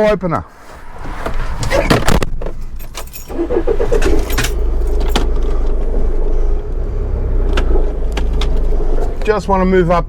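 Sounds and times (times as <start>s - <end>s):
van engine running: 0.6s - 10.0s
keys jangling: 2.6s - 5.5s.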